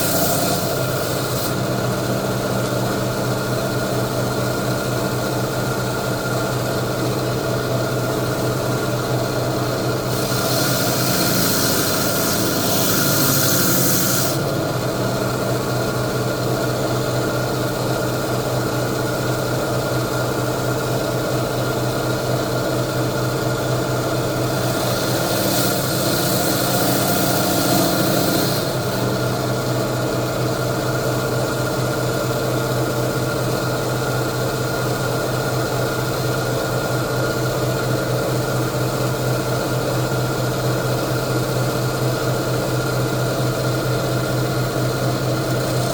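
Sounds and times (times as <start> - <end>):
saw blade grinding: 0.0 - 1.6, 10.1 - 14.5, 24.4 - 29.4
saw motor humming: 0.0 - 3.2, 10.0 - 15.0, 23.9 - 31.0.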